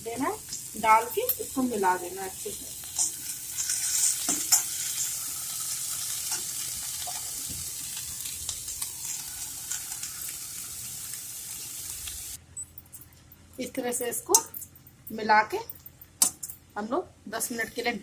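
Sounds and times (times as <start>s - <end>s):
vegetables sizzling in hot oil: 0.0s - 12.4s.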